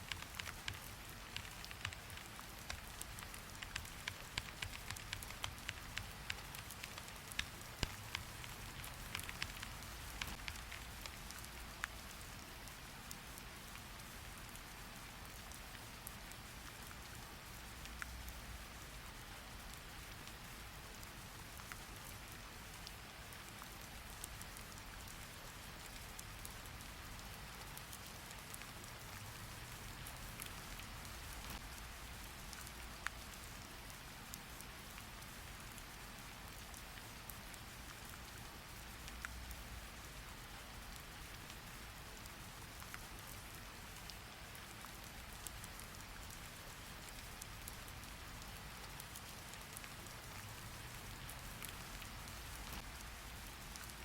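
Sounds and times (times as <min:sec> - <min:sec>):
sharp clicks: 0:00.0 - 0:10.8
steady rain falling: 0:00.0 - 0:54.0.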